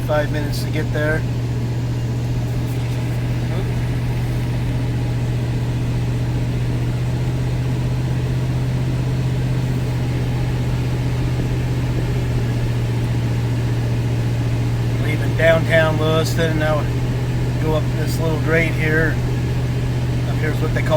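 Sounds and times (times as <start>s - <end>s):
car interior driving drone: 0.0s - 20.9s.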